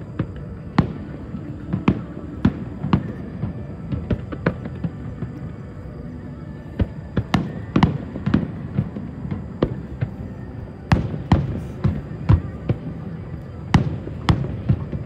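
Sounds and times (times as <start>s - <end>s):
fireworks bangs and cracks: 0.0s - 5.2s, 10.9s - 13.0s.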